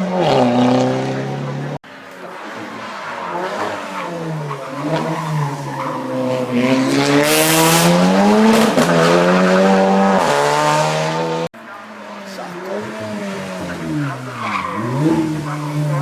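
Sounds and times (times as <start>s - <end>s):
racing car engine accelerating: 3.4s - 11.5s.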